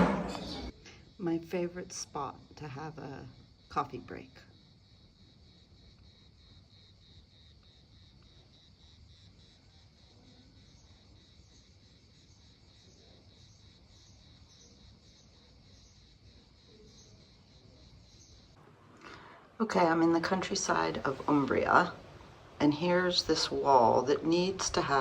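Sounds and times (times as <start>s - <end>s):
insects chirping in pulsing trill: 0.5s - 25.0s.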